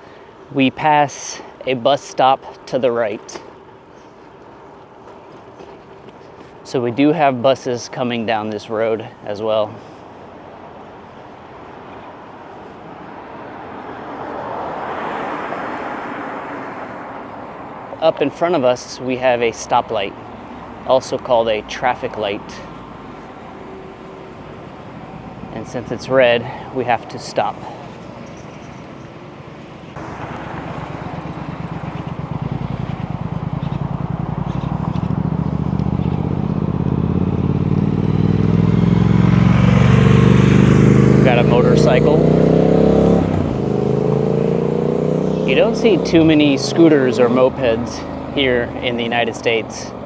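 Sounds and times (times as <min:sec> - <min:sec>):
motor vehicle passing: 0:02.4 - 0:50.0
rushing noise from bicycle ride: 0:24.6 - 0:39.9
motorcycle engine running: 0:30.0 - 0:49.0.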